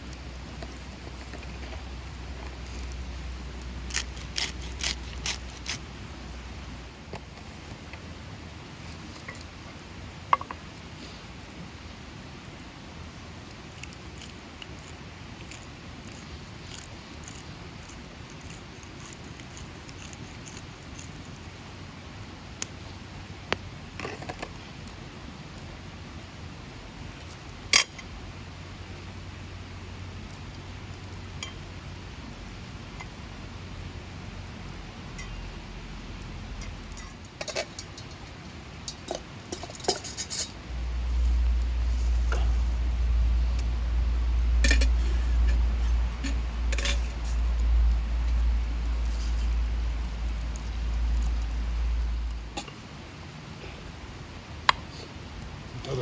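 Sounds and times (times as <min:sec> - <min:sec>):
small sharp crackles and ticks: 0:00.0 - 0:06.0, 0:13.4 - 0:21.6, 0:22.5 - 0:28.2, 0:29.9 - 0:33.3, 0:34.3 - 0:53.0
rain hissing: 0:21.4 - 0:56.0
steady low rumble: 0:40.5 - 0:54.7.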